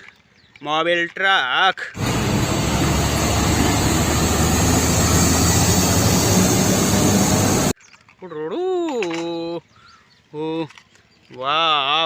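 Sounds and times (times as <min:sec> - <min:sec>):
truck engine rumbling: 0:02.0 - 0:07.8.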